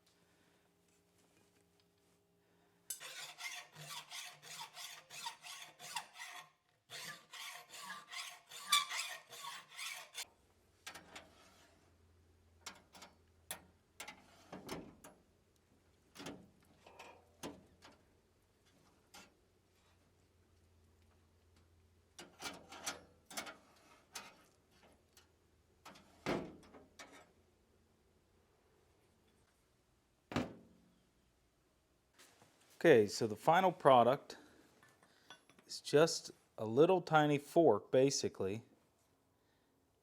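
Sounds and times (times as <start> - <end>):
scraping strokes on steel: 2.9 - 10.3, 11.2 - 11.8.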